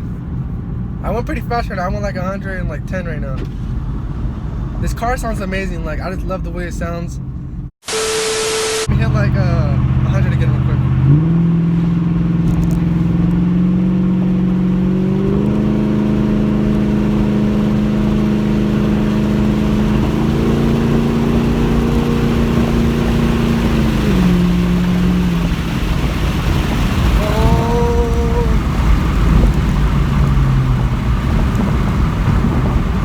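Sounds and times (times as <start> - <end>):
wind and road noise: 0.0 - 33.0
car engine accelerating: 7.2 - 33.0
brief high whine: 7.8 - 9.0.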